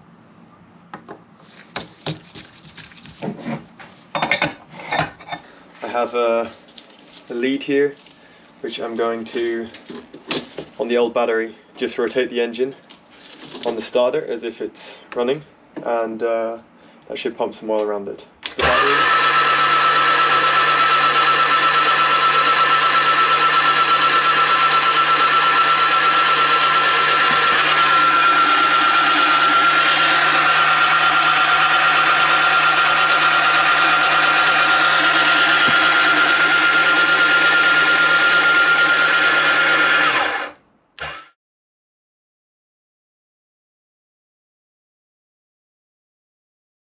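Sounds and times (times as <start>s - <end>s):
starter motor whine: 18.5s - 41.4s.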